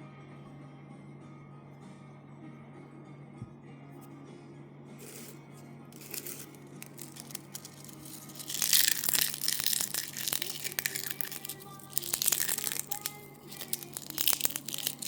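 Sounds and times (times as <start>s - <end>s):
crinkling handling noises: 5.0s - 5.4s, 6.0s - 15.0s.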